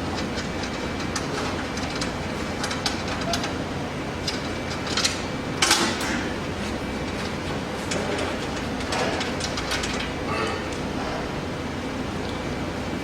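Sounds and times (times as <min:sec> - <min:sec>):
metal parts clicking and clinking: 0:08.8 - 0:10.1.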